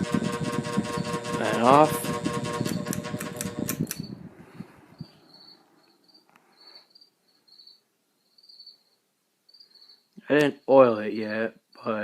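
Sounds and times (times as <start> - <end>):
fan clicks: 0.0 - 4.2
ceiling fan whirring down: 0.0 - 6.0
crickets chirping: 4.9 - 12.0.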